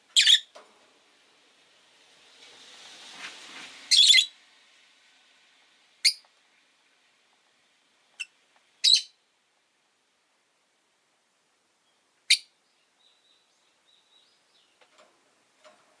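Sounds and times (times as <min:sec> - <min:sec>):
faint rushing street noise: 0:00.0 - 0:16.0
lovebird high-pitched chirps: 0:00.1 - 0:00.5, 0:03.9 - 0:04.3, 0:06.0 - 0:06.3, 0:08.2 - 0:09.2, 0:11.8 - 0:14.8.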